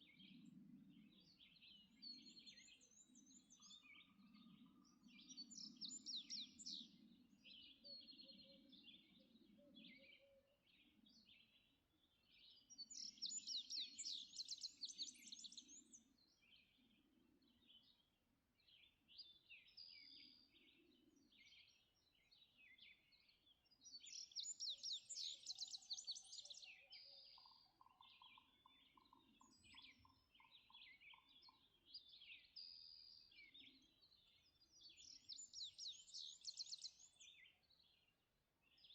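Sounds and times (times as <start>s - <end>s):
short bird chirps and calls: 23.4s - 38.1s.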